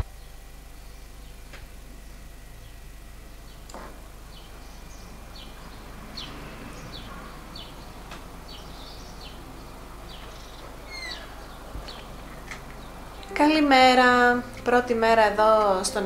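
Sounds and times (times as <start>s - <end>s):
small birds chirping: 0.0s - 13.3s
faint background hiss: 7.8s - 16.0s.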